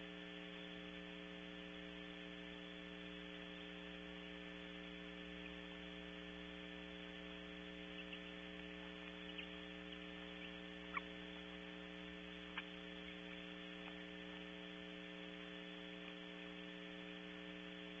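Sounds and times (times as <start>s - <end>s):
electrical hum: 0.0s - 18.0s
faint clicks: 7.6s - 14.6s.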